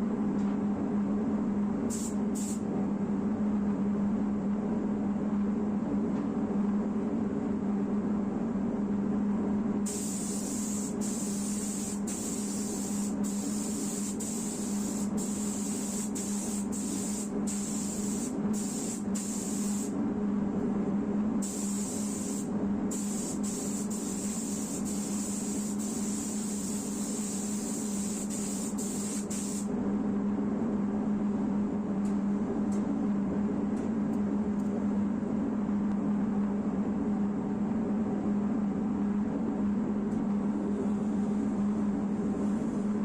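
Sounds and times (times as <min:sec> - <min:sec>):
steady motor hum: 0:00.0 - 0:43.0
spray gun hissing: 0:01.9 - 0:02.6, 0:09.9 - 0:19.9, 0:21.4 - 0:29.7.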